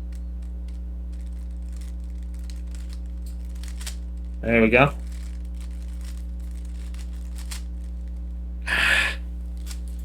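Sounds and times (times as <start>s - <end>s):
breathy noise rush: 8.7s - 9.2s.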